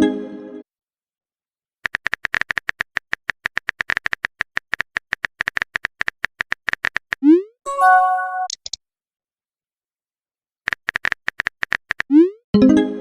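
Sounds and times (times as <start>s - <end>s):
keyboard typing clicks: 1.8s - 7.2s, 8.4s - 8.8s, 10.7s - 12.2s.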